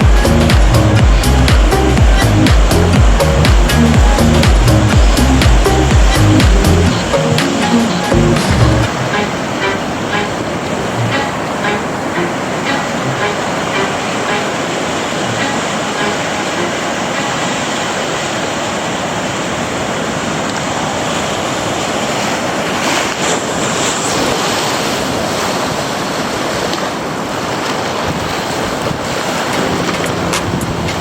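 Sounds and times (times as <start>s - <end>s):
wind on microphone: 0.0s - 17.8s, 27.9s - 31.0s
ocean surf breaking: 0.0s - 31.0s.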